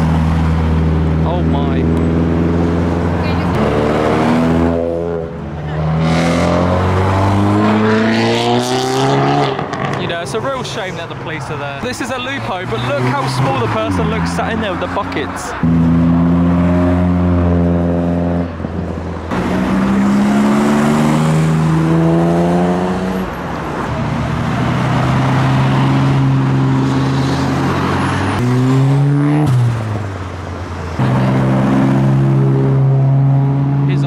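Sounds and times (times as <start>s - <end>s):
car engines accelerating past: 0.0s - 10.2s, 19.3s - 34.0s.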